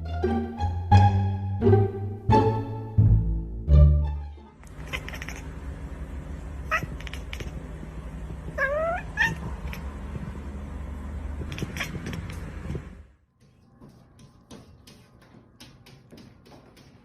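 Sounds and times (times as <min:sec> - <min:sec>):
cat meowing: 0:04.6 - 0:05.5, 0:06.6 - 0:07.6, 0:08.5 - 0:10.0, 0:11.4 - 0:12.4
steady low hum: 0:04.6 - 0:14.4.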